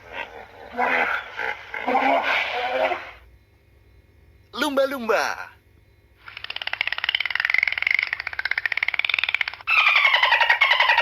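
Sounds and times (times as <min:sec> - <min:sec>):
dolphin pulsed chatter: 0:06.2 - 0:11.0
dolphin pulsed squawks: 0:08.5 - 0:11.0
dolphin whistle: 0:09.7 - 0:11.0.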